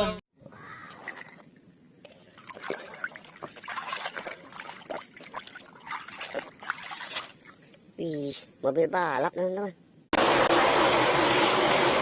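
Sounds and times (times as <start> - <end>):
water splashing and trickling: 0.7 - 8.0
water drips and plops: 2.3 - 7.8.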